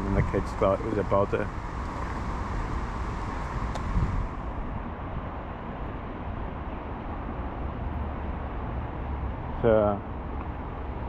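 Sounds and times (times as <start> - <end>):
high hiss: 0.0 - 4.5
road traffic rumble: 0.0 - 11.0.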